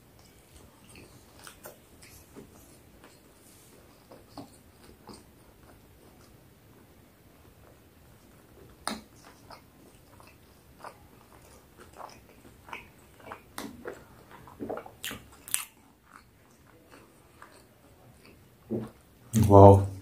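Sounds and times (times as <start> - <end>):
person chewing food: 0.0 - 19.2
wet clicks and lip smacks: 11.8 - 16.3.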